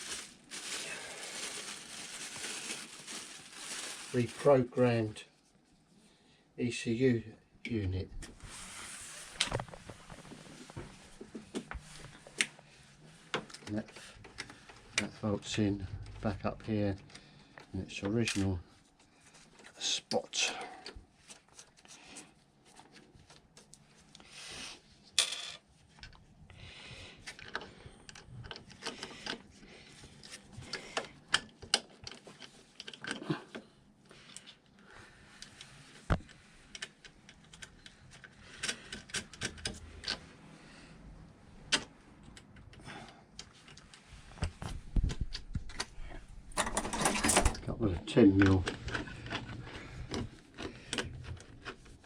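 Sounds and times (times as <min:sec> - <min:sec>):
clicks and rattles of hand tools: 0:46.5 - 0:51.9.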